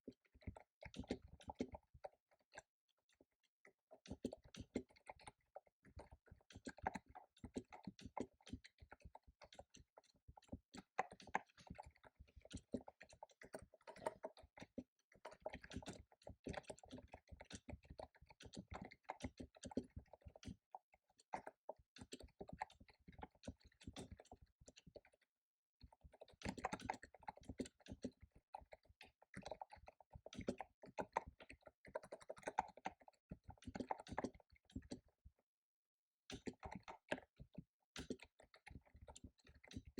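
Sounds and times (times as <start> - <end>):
fast typing on keyboard: 25.8 - 35.0.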